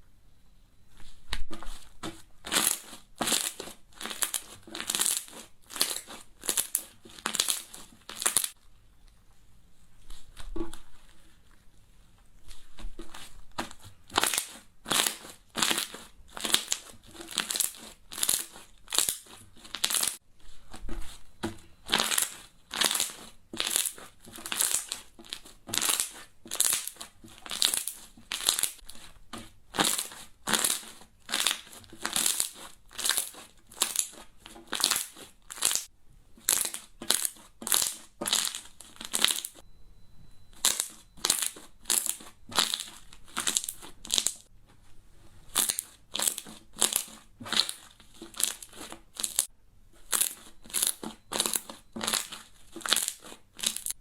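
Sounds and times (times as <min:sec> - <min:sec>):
crunchy slime squeezed by hand: 0:02.4 - 0:08.5, 0:13.0 - 0:20.2, 0:21.8 - 0:29.1, 0:29.8 - 0:39.6, 0:40.6 - 0:44.4, 0:45.5 - 0:53.9.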